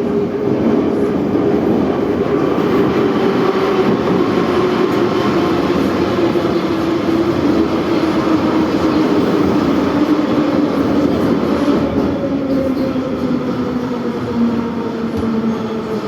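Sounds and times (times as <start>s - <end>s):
metro train rumbling: 0.0s - 16.0s.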